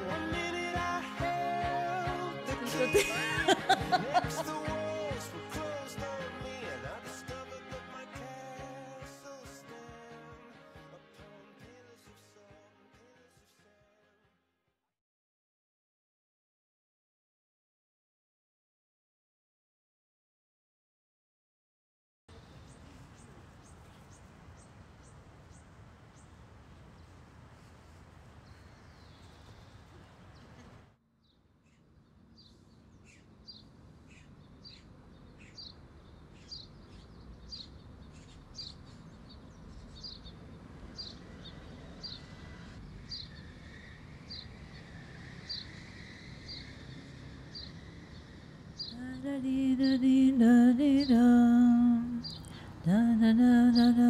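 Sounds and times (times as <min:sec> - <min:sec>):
person humming a melody: 0:00.0 - 0:06.2, 0:48.9 - 0:54.0
bird chirping: 0:22.3 - 0:27.2, 0:27.9 - 0:50.1, 0:50.8 - 0:54.0
outdoor background hiss: 0:22.3 - 0:54.0.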